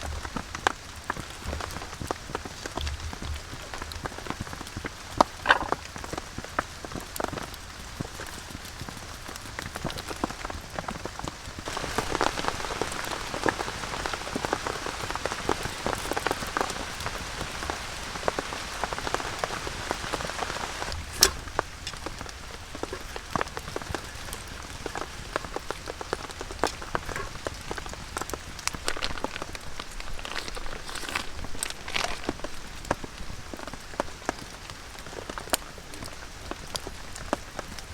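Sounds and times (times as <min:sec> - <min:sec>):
heavy rain falling: 0:00.0 - 0:37.9.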